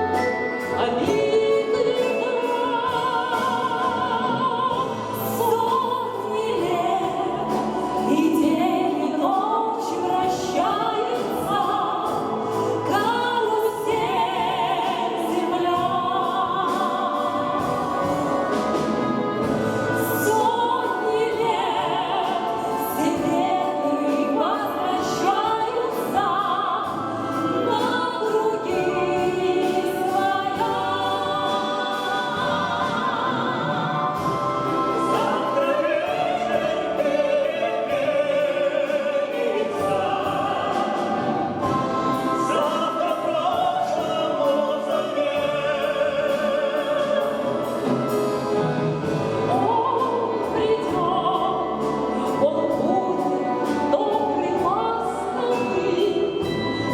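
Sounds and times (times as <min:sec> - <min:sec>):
instrumental accompaniment: 0:00.0 - 0:56.9
singers singing in harmony: 0:00.0 - 0:56.9.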